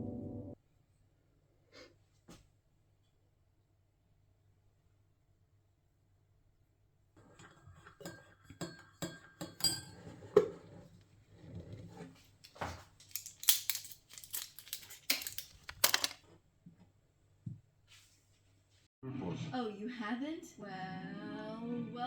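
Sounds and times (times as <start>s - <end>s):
rustling and scraping: 10.1s - 16.4s
objects clicking and knocking: 12.4s - 16.3s.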